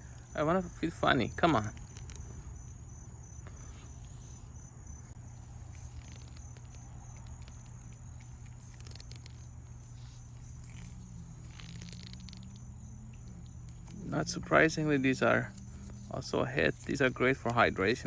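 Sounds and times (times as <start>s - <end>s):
insects trilling: 0.0s - 18.0s
low steady hum: 0.0s - 18.0s.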